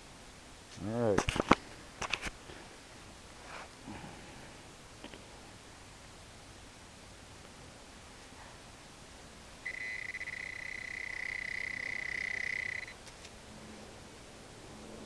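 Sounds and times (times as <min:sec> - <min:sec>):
high-pitched alert tone: 0:09.7 - 0:12.9.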